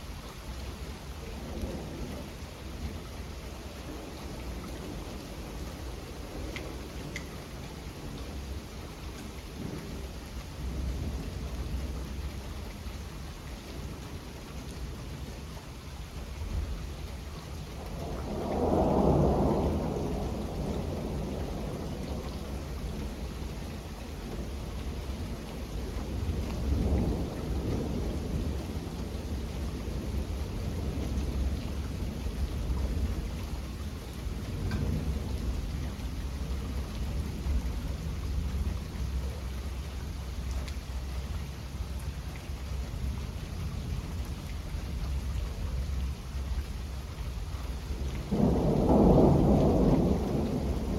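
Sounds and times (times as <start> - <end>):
steady rain: 0.0 - 50.9
rolling thunder: 17.7 - 39.3, 47.3 - 50.9.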